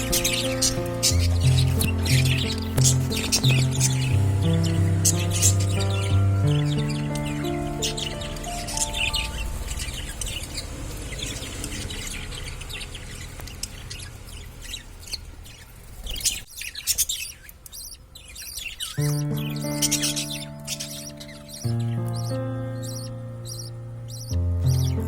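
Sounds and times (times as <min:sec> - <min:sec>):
low background rumble: 0:00.0 - 0:16.0
budgerigars chirping: 0:00.0 - 0:25.0.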